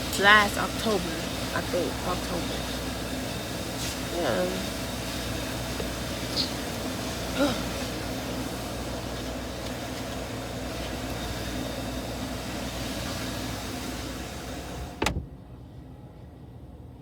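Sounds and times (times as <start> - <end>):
low hum: 0.0 - 16.5
open air hiss and hum: 0.0 - 17.0
car door slamming: 14.9 - 15.3.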